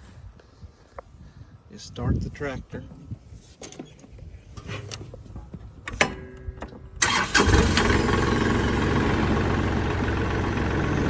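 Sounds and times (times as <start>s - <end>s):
diesel engine starting and idling: 7.0s - 11.0s.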